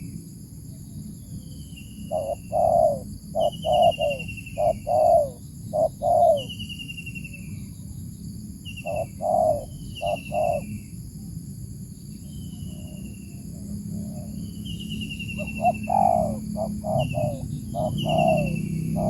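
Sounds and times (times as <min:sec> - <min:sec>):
high insect drone: 0:00.0 - 0:19.0
birds cooing: 0:02.1 - 0:06.6, 0:08.9 - 0:10.7, 0:13.7 - 0:19.0.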